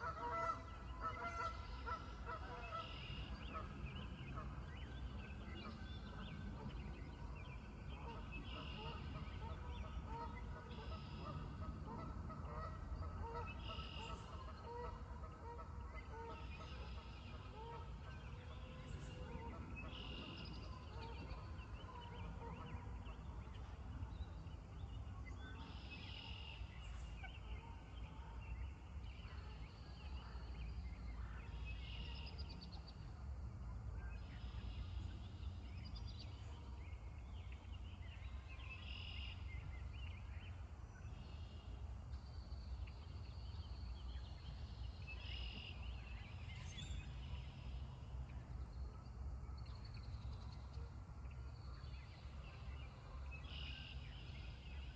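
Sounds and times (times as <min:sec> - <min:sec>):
geese calling: 0:00.0 - 0:03.8, 0:08.1 - 0:18.6
steady low rumble: 0:00.0 - 0:54.9.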